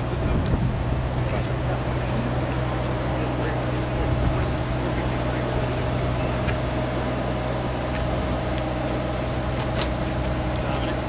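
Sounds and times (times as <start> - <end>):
engine running hum: 0.0 - 11.0.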